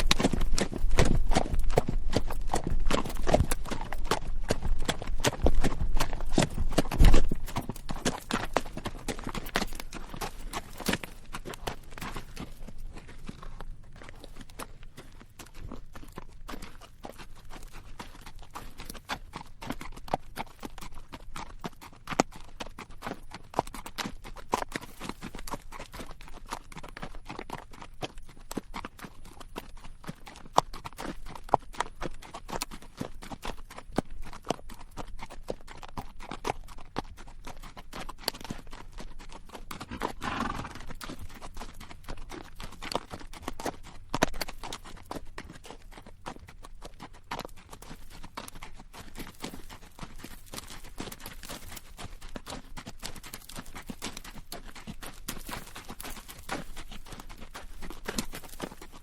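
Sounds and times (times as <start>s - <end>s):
saddle creaking: 0.0s - 17.1s, 39.4s - 52.0s, 53.3s - 59.0s
horse hooves clopping on rocky dirt: 0.0s - 59.0s
horse snorting: 39.8s - 41.0s.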